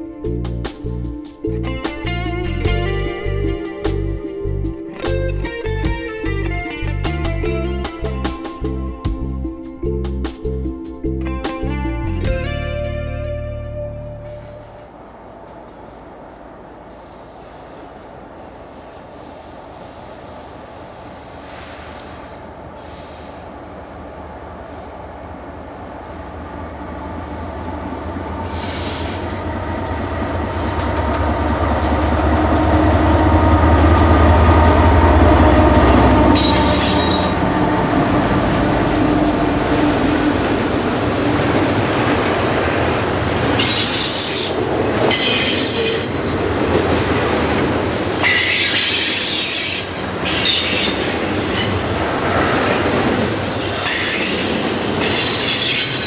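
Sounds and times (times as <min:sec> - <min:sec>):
locomotive engine rumble: 0:00.0 - 0:56.0
train wheels squealing: 0:28.4 - 0:29.4, 0:35.1 - 0:46.5, 0:47.5 - 0:56.0.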